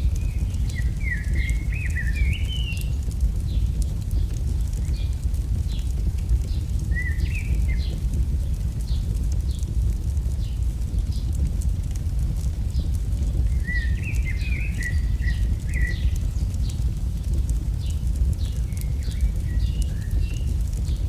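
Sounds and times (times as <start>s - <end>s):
bird singing: 0.0s - 3.0s, 5.8s - 8.0s, 13.5s - 16.8s, 17.8s - 20.7s
fire crackling: 0.0s - 21.0s
low rumble: 0.0s - 21.0s.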